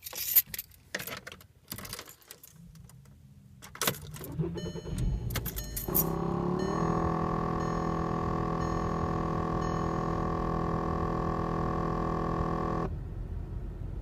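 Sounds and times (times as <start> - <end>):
keys jangling: 0.0 - 2.6
car engine starting: 2.6 - 14.0
buzzing motor whine: 5.9 - 12.9.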